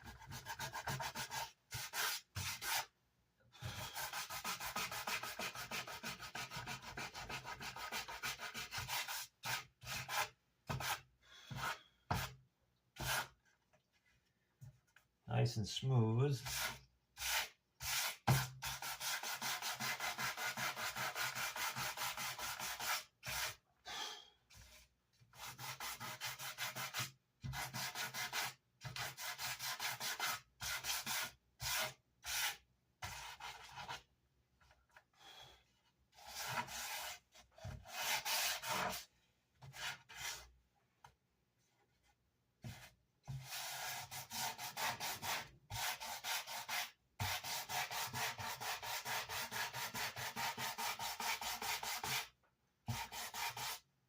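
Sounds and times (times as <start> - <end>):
sandpaper on wood: 0.1 - 2.9, 3.9 - 12.3, 16.4 - 23.6, 25.4 - 34.0, 43.4 - 52.3, 52.9 - 53.8.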